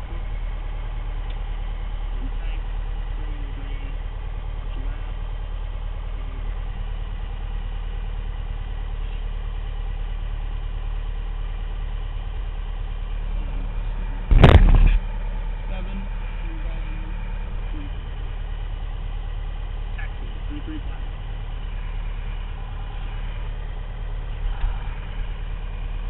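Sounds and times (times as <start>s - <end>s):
propeller engine drone: 0.0s - 26.0s
loud crackling burst: 14.3s - 15.1s.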